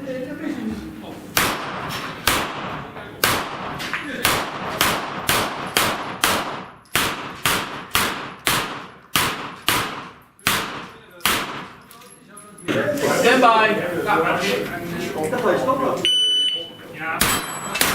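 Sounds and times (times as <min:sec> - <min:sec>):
gunshots with echo: 0:01.4 - 0:11.8, 0:17.2 - 0:17.9.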